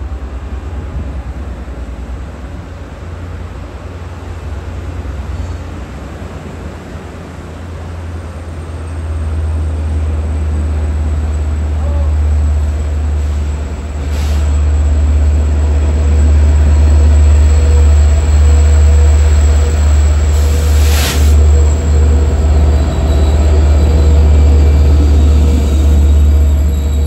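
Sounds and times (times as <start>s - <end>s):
train coaches rumbling past: 0.0s - 27.0s
faint wheel squeal: 5.3s - 5.8s
brief hiss: 14.1s - 14.5s, 20.4s - 21.4s.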